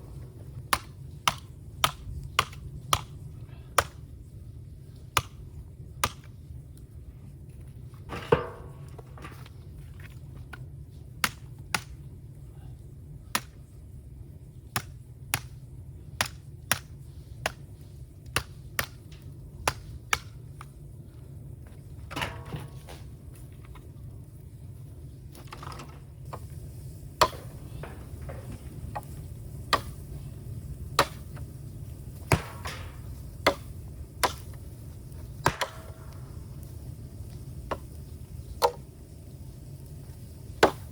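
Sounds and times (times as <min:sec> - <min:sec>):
bamboo fire crackling and popping: 0:00.0 - 0:40.9
low fire rumble: 0:00.0 - 0:40.9.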